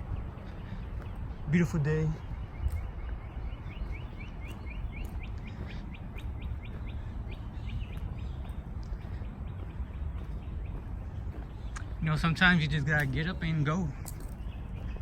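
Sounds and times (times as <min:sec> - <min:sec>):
bird chirping rapidly: 0:00.0 - 0:15.0
steady low rumble: 0:00.0 - 0:15.0.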